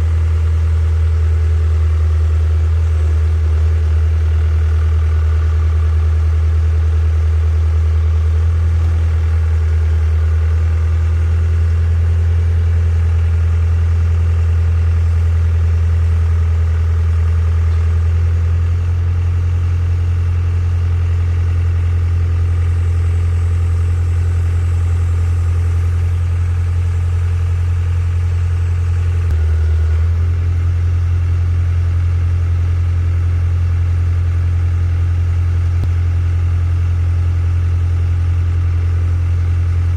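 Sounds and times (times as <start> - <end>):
excavator diesel engine idling: 0.0 - 39.9.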